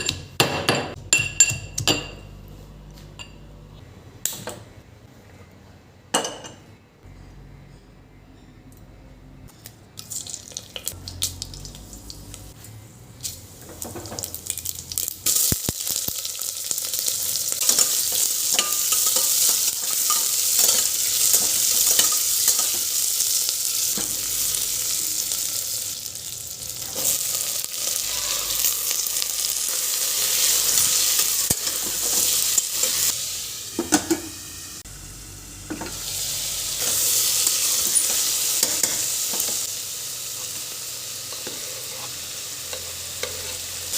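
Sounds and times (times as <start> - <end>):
food sizzling in a pan: 13.2 - 43.9
spoon scraping a pan: 41.3 - 43.7.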